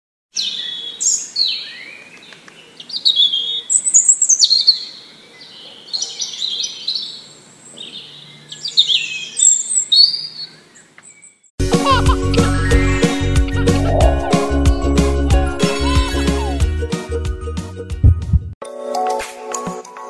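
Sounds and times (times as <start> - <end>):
songbirds chirping and singing: 0.4 - 11.5, 12.4 - 16.6.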